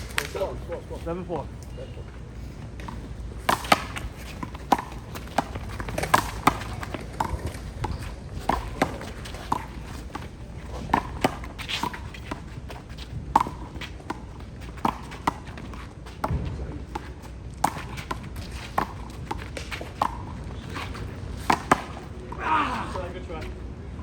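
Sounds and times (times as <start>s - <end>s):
sneakers scuffing on court: 2.0s - 22.2s
handball smacking: 3.4s - 12.4s, 13.4s - 22.1s.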